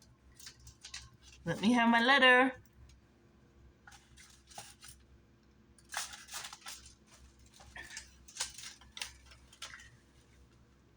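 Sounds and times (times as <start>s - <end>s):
paper crinkling: 0.3s - 1.8s, 3.9s - 5.1s, 5.8s - 10.6s.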